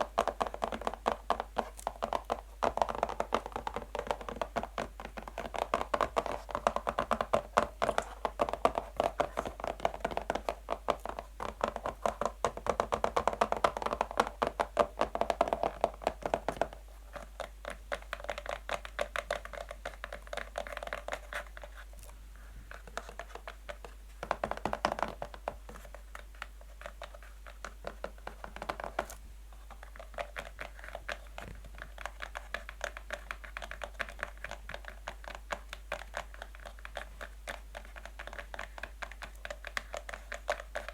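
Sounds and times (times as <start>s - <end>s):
fingernails tapping on a box: 23.0s - 29.2s.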